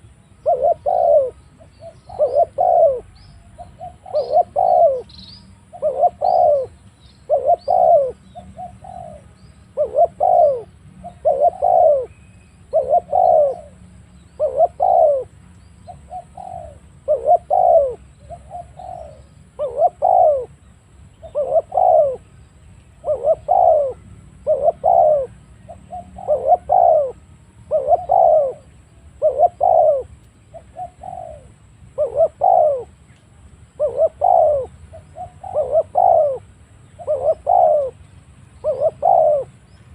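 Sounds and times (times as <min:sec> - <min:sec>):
dove cooing: 0:00.0 - 0:20.6, 0:21.2 - 0:22.3, 0:23.0 - 0:33.0, 0:33.7 - 0:38.0, 0:38.6 - 0:39.7
faint high bird chirps: 0:00.0 - 0:39.9.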